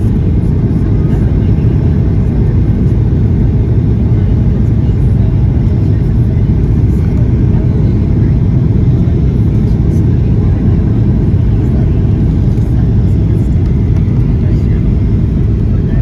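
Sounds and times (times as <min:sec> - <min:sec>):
airplane cabin engine rumble: 0:00.0 - 0:16.0.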